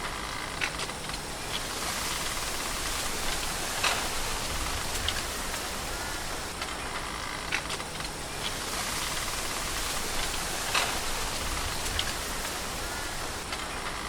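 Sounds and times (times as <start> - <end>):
outdoor ambient hiss: 0.0 - 14.0.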